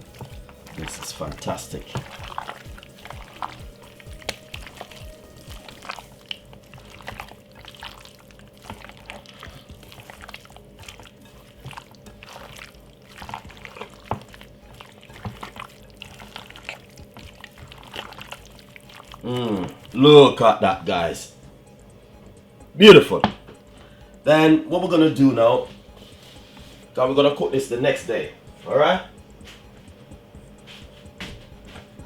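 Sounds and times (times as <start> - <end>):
hands squelching raw chicken: 0.0 - 21.1
faint steady hum: 0.0 - 32.0
small clicks and smacks: 1.9 - 7.9.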